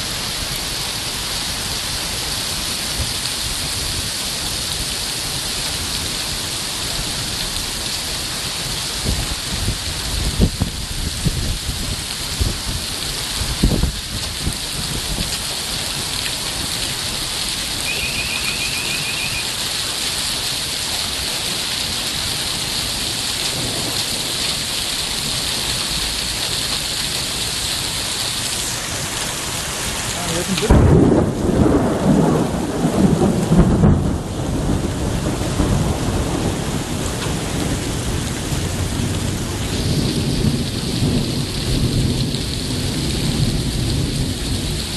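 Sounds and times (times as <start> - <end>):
heavy rain pouring: 0.0 - 44.9
loud thunderclap rumbling: 23.5 - 26.1, 28.3 - 44.9.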